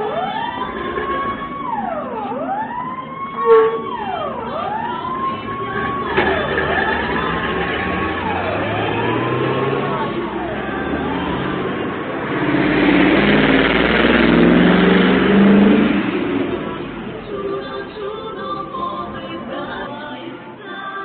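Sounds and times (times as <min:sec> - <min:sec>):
fire truck engine revving: 0:00.0 - 0:20.0
music: 0:17.2 - 0:21.0.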